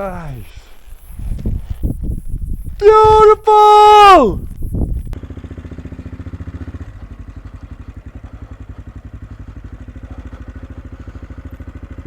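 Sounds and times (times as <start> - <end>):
single-cylinder engine thumping: 4.8 - 12.0.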